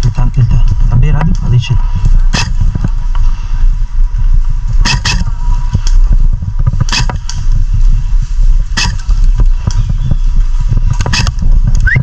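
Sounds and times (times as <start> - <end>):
wind buffeting microphone: 0.0 - 12.0
sharp snaps: 2.3 - 2.6, 4.8 - 6.0, 6.8 - 7.4, 8.8 - 9.1, 10.9 - 12.0.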